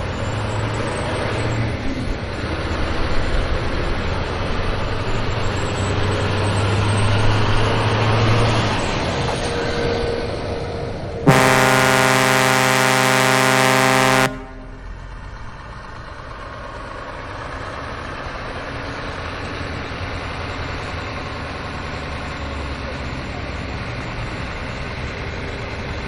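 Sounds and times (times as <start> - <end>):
vehicle horn blast: 11.3 - 15.0.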